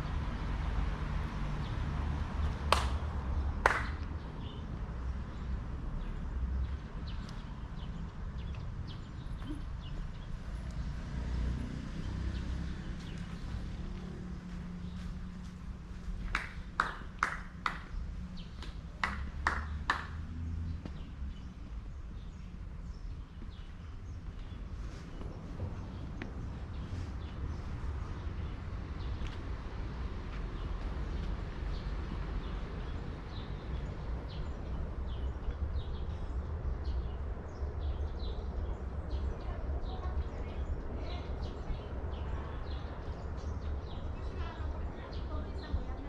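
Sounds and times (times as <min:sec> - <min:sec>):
small birds chirping: 0:03.9 - 0:46.0
hard-soled footsteps on path: 0:12.4 - 0:20.0, 0:20.6 - 0:32.4
steady low rumble: 0:20.3 - 0:46.0.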